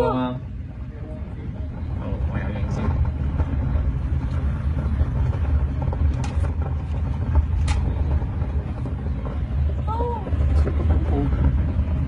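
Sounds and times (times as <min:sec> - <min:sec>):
wind buffeting microphone: 0:00.1 - 0:12.0.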